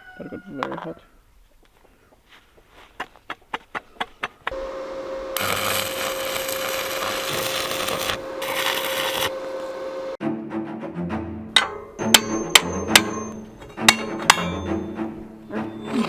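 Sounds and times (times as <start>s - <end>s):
power tool grinding metal: 5.4s - 9.8s, 11.6s - 16.0s.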